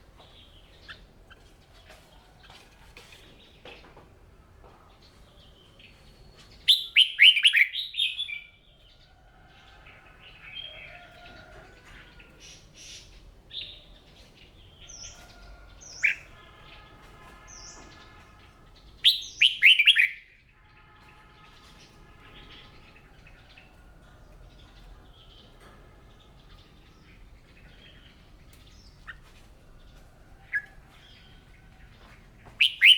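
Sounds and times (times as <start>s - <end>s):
faint bird chirps and calls: 5.1s - 8.8s, 20.8s - 32.9s
bird singing: 5.2s - 9.0s, 10.3s - 32.9s.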